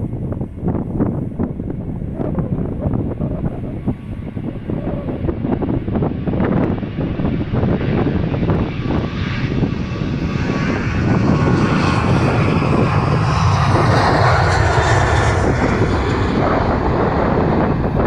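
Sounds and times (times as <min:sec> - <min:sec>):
jet engine roar: 0:00.0 - 0:18.0.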